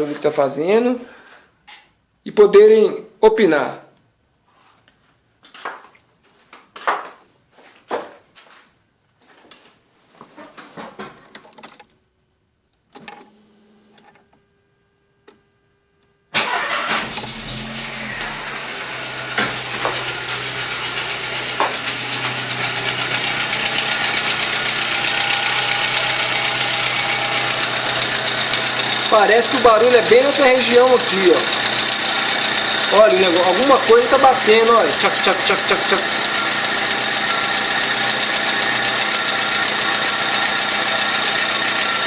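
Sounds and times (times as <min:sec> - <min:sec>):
car engine running: 0:16.4 - 0:42.0
rapid exhaust ticking: 0:19.6 - 0:42.0.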